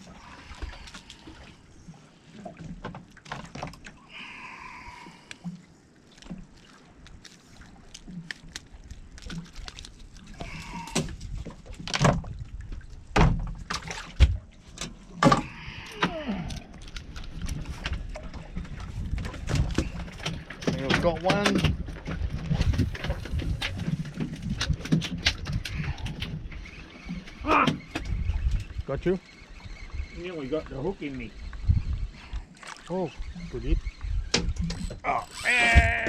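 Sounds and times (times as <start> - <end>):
knocks and clunks in a boat: 0.0 - 4.0, 9.2 - 36.0.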